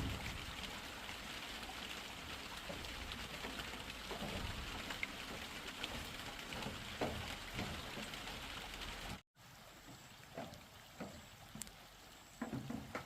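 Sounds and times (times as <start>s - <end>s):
steady rain falling: 0.0s - 13.0s
water drips: 0.0s - 13.0s
knocks: 12.4s - 13.0s.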